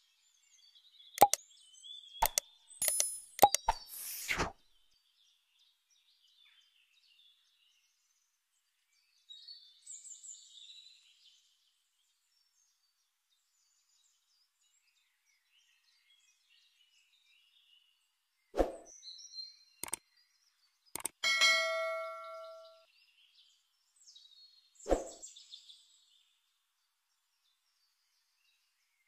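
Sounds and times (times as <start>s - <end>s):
faint birds chirping: 0.0s - 29.0s
animation sound effect: 2.2s - 4.5s.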